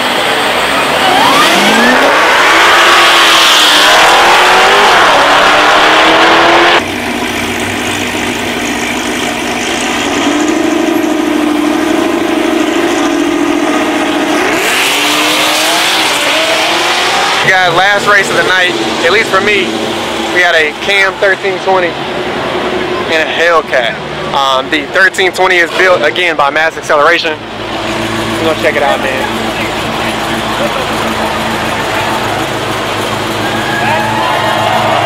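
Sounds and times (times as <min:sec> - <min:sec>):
race car engine accelerating: 0:00.0 - 0:24.5, 0:27.2 - 0:35.0
steady engine note: 0:00.0 - 0:25.0, 0:26.8 - 0:35.0.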